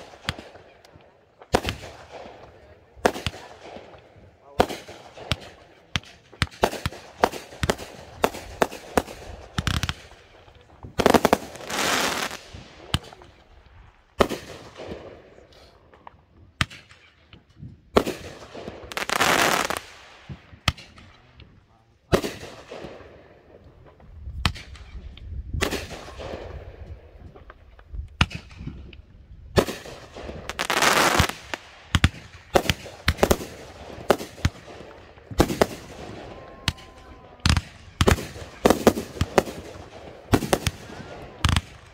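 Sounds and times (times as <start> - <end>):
fireworks bangs and pops: 0.0 - 41.9
fireworks hissing bursts: 11.0 - 12.6, 18.9 - 20.3, 29.6 - 34.6.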